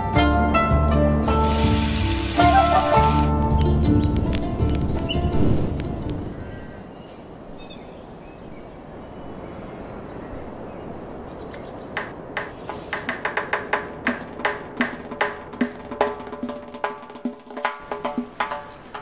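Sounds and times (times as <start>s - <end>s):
music: 0.0s - 6.3s, 13.0s - 19.0s
soft ambient hiss: 1.4s - 3.4s, 6.8s - 16.4s
sharp knocks: 12.0s - 15.8s.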